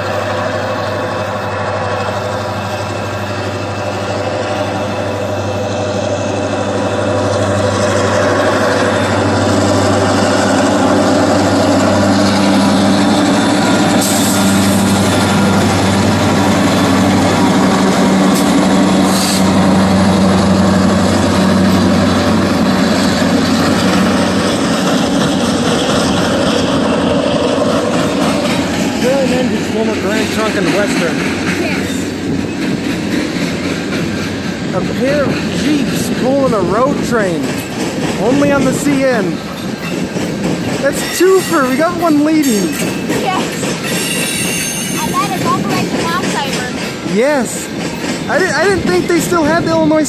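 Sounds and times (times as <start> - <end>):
diesel locomotive engine drone: 0.0 - 50.0
freight cars rolling: 0.0 - 50.0.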